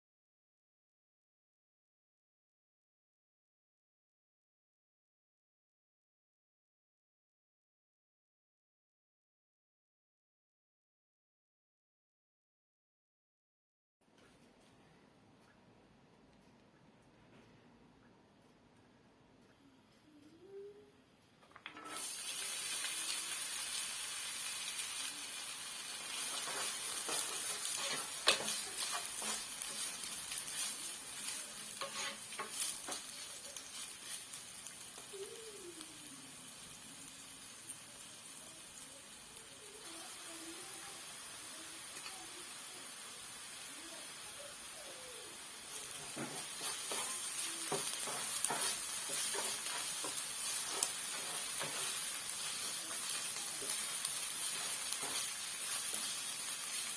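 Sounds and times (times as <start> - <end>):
food sizzling in hot oil: 21.7 - 56.9
utensil scraping a pan: 21.8 - 23.9, 24.8 - 34.5, 45.7 - 56.9.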